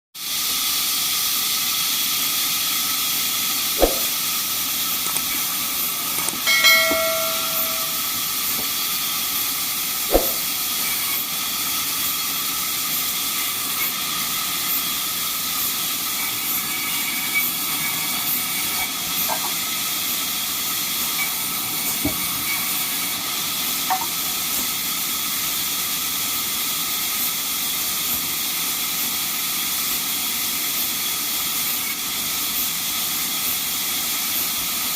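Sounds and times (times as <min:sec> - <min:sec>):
sawmill machinery hissing: 0:00.2 - 0:34.9
sharp knocks: 0:03.8 - 0:04.1, 0:06.5 - 0:08.0, 0:10.1 - 0:10.4.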